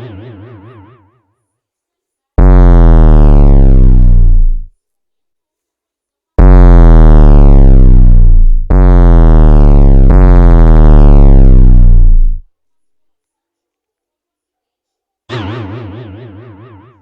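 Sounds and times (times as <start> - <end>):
loud buzzy low synth tone: 0.0 - 1.2, 2.4 - 4.8, 6.4 - 12.5
warbling electronic tone: 0.0 - 1.3.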